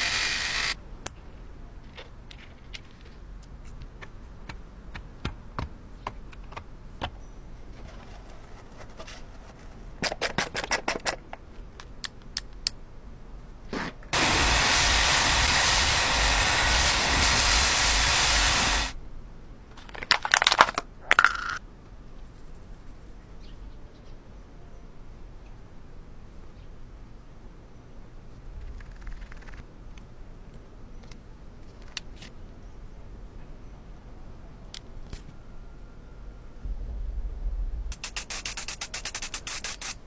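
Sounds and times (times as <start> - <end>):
spraying hiss: 0.0 - 0.8, 14.2 - 19.0, 37.9 - 40.0.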